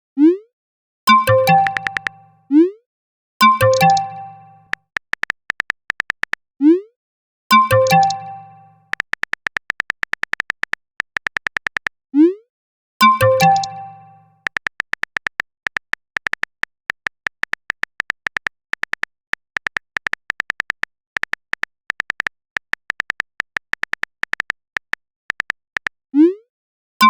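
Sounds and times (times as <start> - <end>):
notification chime: 1.2 - 2.2, 13.0 - 14.3
keyboard tap clicks: 1.3 - 2.2, 3.6 - 6.4, 7.7 - 12.0, 13.2 - 26.0.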